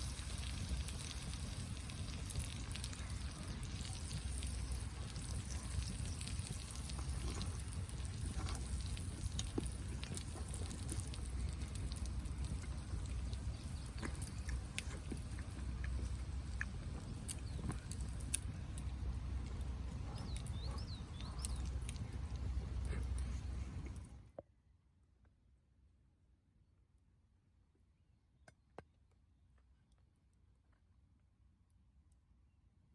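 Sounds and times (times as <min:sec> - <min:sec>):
food frying in a pan: 0:00.0 - 0:18.4.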